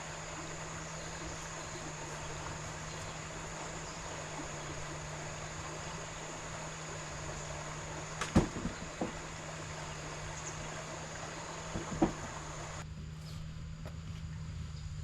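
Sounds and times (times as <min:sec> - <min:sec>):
low hum: 0:00.0 - 0:15.0
steady hiss: 0:00.0 - 0:15.0
sharp knocks: 0:08.2 - 0:09.3, 0:11.7 - 0:12.4.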